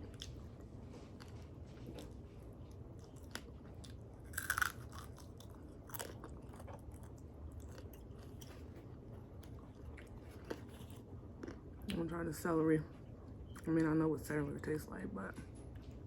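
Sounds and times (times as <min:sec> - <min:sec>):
crunching bites: 0:04.3 - 0:06.7.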